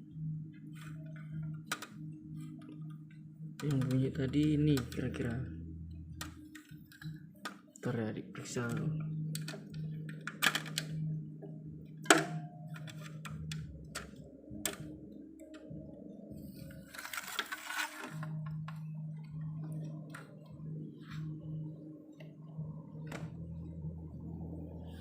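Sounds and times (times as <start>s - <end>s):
steady low hum: 0.0s - 25.0s
clicks and knocks of handling: 0.7s - 3.0s, 3.6s - 5.3s, 6.1s - 7.9s, 8.5s - 11.1s, 12.0s - 15.7s.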